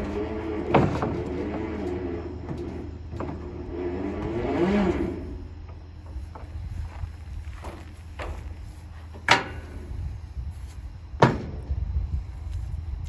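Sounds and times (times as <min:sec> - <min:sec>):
winch motor whining: 0:00.0 - 0:12.8
sharp clunk: 0:07.6 - 0:10.1, 0:11.2 - 0:11.9.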